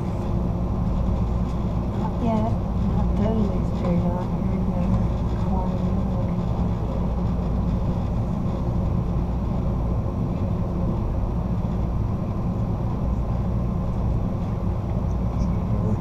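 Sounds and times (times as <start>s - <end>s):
train car rolling on track: 0.0s - 16.0s.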